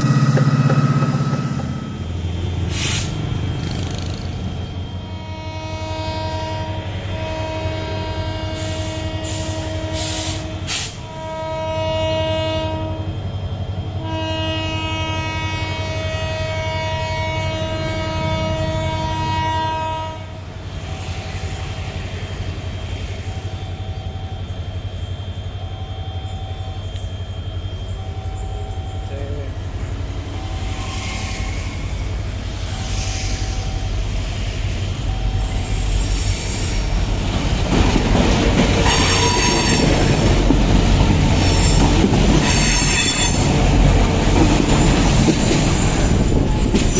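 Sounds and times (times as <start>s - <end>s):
locomotive air horn: 5.0s - 13.1s, 14.0s - 20.4s, 38.8s - 40.0s, 42.4s - 43.6s.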